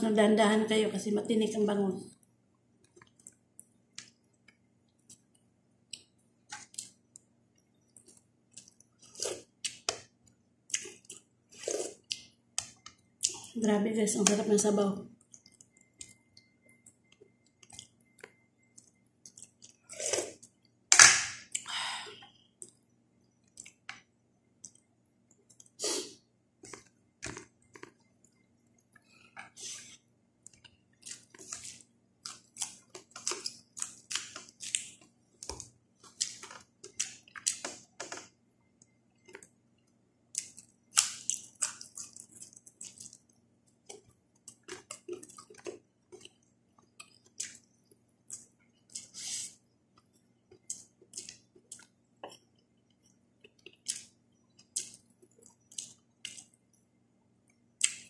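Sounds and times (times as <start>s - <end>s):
person chewing with wet mouth sounds: 2.8s - 13.6s, 15.2s - 20.7s, 21.4s - 38.2s, 38.8s - 56.8s.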